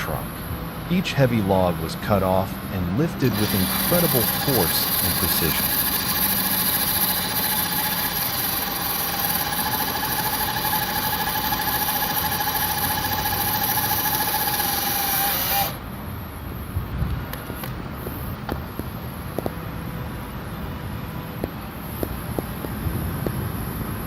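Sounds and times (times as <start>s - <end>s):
high steady whine: 0.0s - 24.0s
machine engine running: 2.5s - 15.9s.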